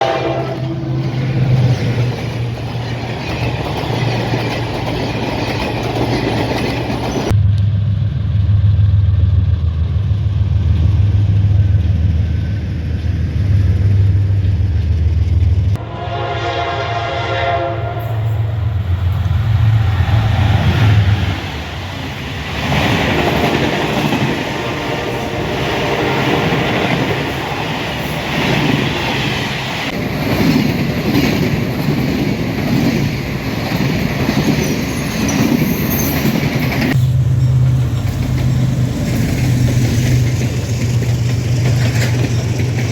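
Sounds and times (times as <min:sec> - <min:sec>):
train horn: 0:00.0 - 0:01.6, 0:15.8 - 0:19.1, 0:22.9 - 0:27.6
train engine drone: 0:00.0 - 0:42.9
train wheels rumbling: 0:00.0 - 0:42.9.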